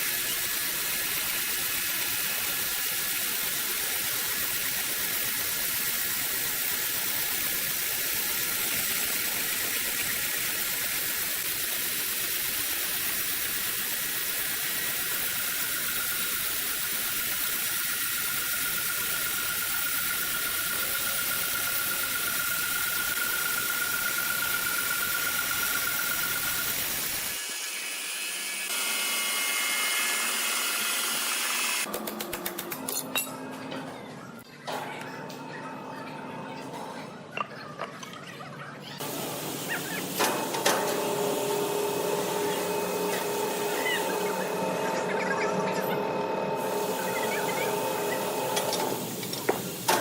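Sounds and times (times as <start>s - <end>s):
machinery hissing: 0.0s - 28.8s, 39.0s - 50.0s.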